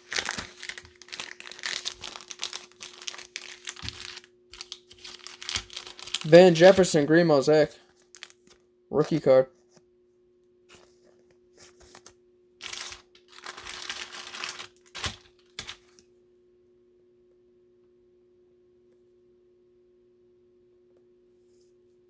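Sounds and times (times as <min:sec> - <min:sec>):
plastic sleeves rustling: 0:00.0 - 0:09.8, 0:10.7 - 0:16.0
faint steady hum: 0:00.0 - 0:22.0.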